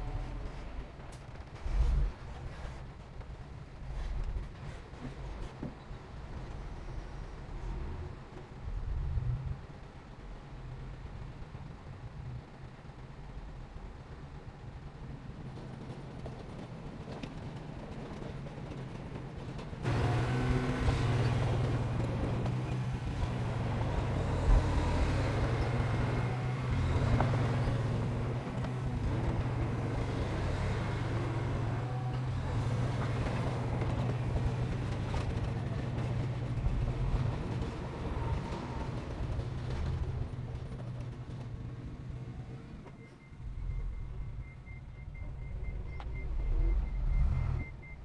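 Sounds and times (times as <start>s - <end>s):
diesel engine running under load: 19.8s - 40.7s.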